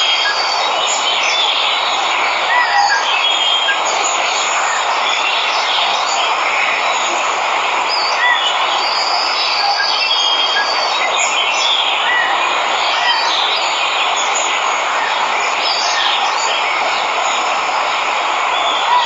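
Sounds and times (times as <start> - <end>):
birds chirping: 0.0 - 19.0
waterfall rushing: 0.0 - 19.0.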